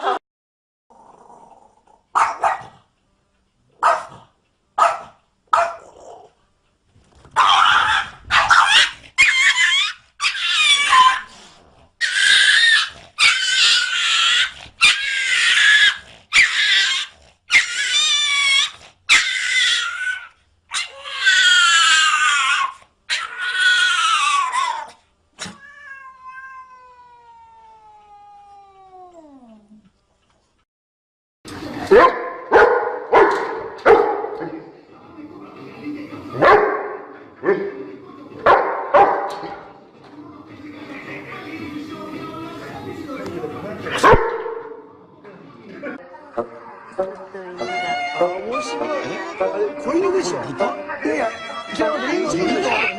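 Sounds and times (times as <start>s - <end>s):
cat yowling: 7.4s - 11.3s, 12.0s - 29.5s, 51.0s - 52.9s.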